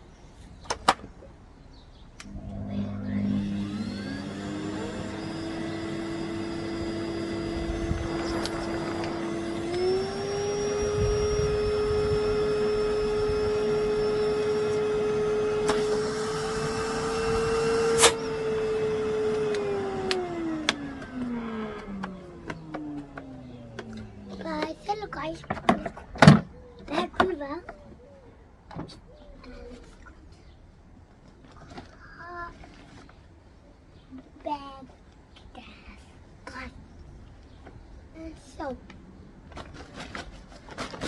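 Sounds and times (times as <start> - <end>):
vacuum cleaner motor whine: 2.2 - 24.7.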